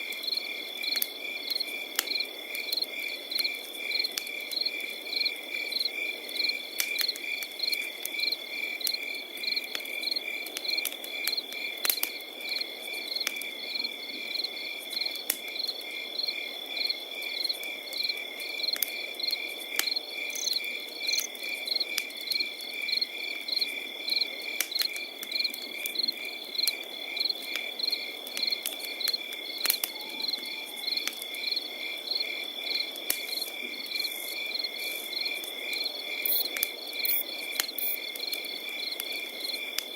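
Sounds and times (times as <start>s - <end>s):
campfire crackling and popping: 0.0s - 39.9s
crickets chirping: 0.1s - 39.9s.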